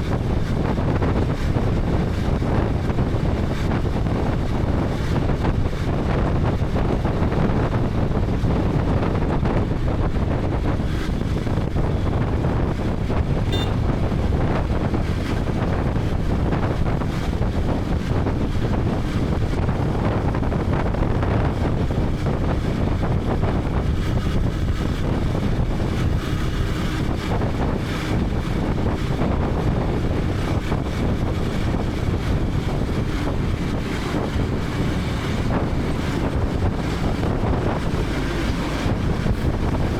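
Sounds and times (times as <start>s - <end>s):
wind buffeting microphone: 0.0s - 39.9s
road noise: 0.1s - 39.9s
motorcycle engine running: 10.8s - 39.9s.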